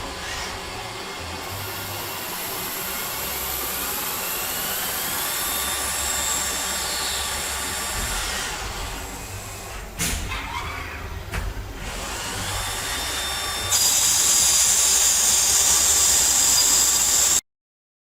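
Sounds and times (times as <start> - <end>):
lathe machining hiss: 12.2 - 17.4.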